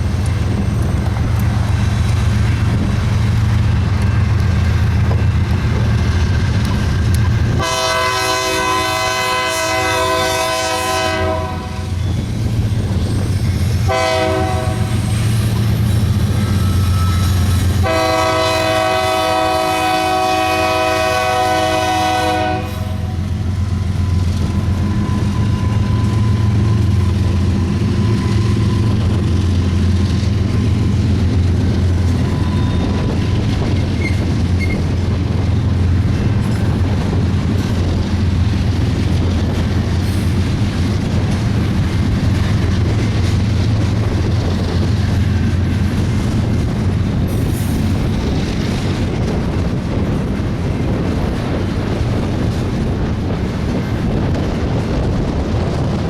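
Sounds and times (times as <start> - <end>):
diesel locomotive engines droning: 0.0 - 56.0
train wheels clattering on rails: 0.0 - 56.0
locomotive air horn blast: 7.6 - 12.0, 13.9 - 15.1, 17.5 - 23.4.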